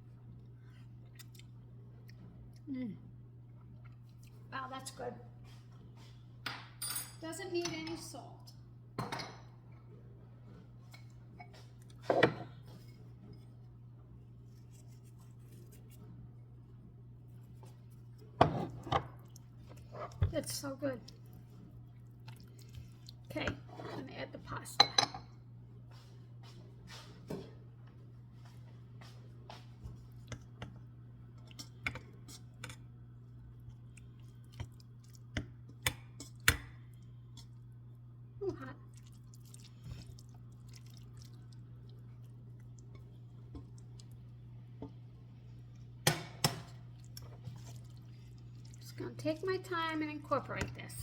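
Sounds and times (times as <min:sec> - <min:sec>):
steady low hum: 0:08.0 - 0:51.0.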